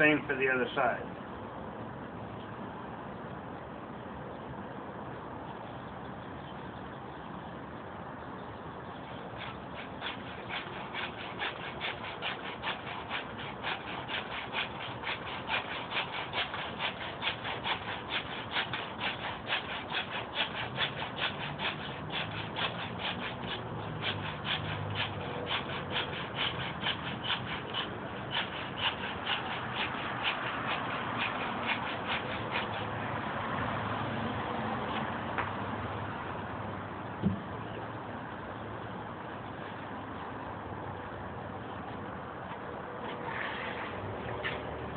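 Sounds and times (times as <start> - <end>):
hand saw cutting wood: 9.1 - 33.2.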